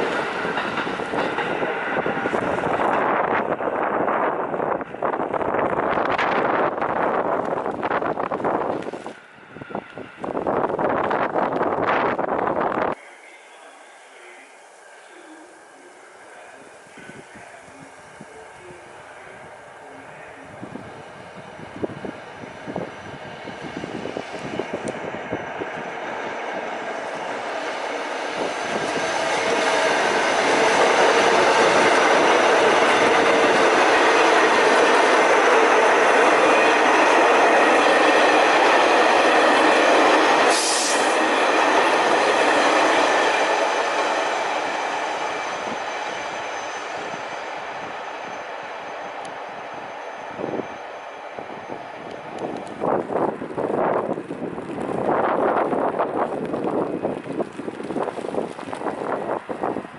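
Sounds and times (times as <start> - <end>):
subway train passing: 0.0 - 59.9
sharp hiss: 40.5 - 41.2.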